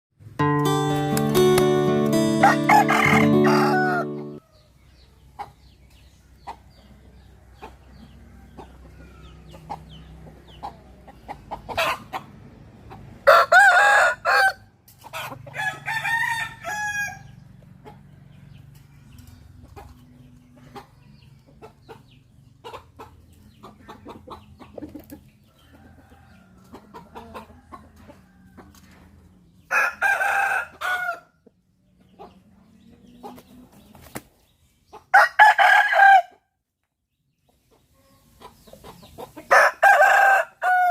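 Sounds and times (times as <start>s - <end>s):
chickens clucking: 0.4s - 36.4s, 37.2s - 40.9s
roosters crowing: 2.1s - 4.8s, 11.7s - 17.6s, 25.5s - 31.4s, 35.1s - 36.4s, 39.4s - 40.9s.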